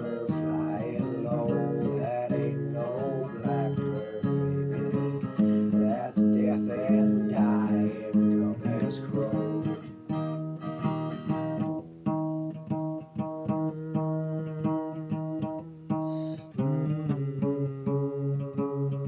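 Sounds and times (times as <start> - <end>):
wavering melody line: 0.0 - 10.3
acoustic guitar chords: 0.0 - 19.0.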